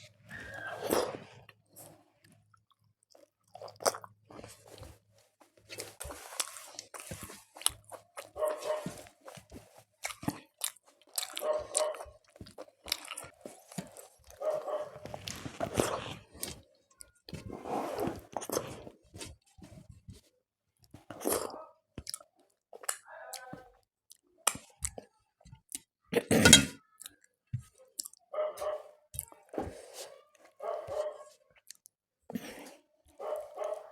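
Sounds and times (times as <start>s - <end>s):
person chewing crunchy food: 0.6s - 5.0s, 5.6s - 18.9s, 20.9s - 25.1s, 28.0s - 28.2s, 31.6s - 32.8s.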